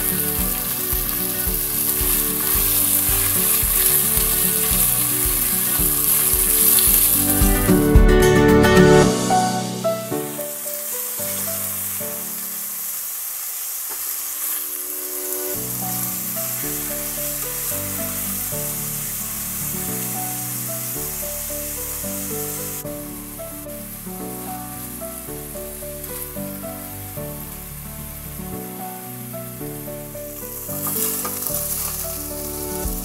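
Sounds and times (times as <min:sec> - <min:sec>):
chicken sizzling in a pan: 0:00.0 - 0:07.4, 0:10.3 - 0:24.0, 0:30.3 - 0:33.0
spatula turning food: 0:00.0 - 0:07.4
slow background music: 0:00.0 - 0:12.9, 0:14.4 - 0:33.0.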